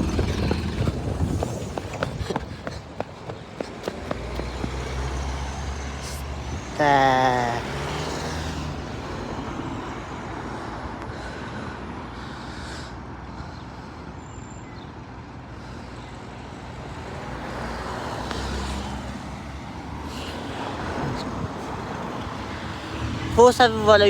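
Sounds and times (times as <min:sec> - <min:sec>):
road traffic passing: 0:00.0 - 0:24.0
vehicle engine rumble: 0:00.0 - 0:24.0.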